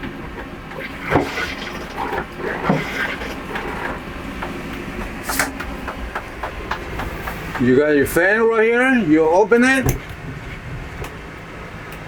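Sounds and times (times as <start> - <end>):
low rumble: 4.0 - 11.8
knocks clicks and rattles: 9.6 - 11.2.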